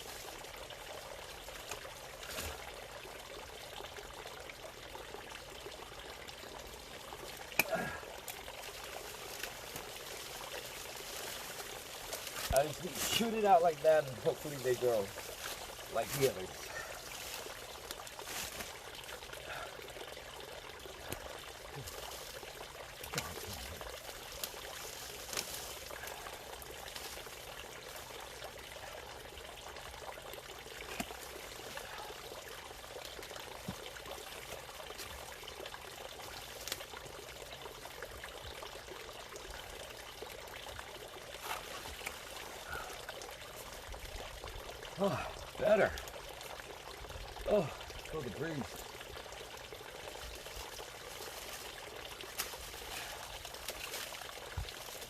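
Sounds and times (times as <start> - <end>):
water bubbling and trickling: 0.0 - 55.0.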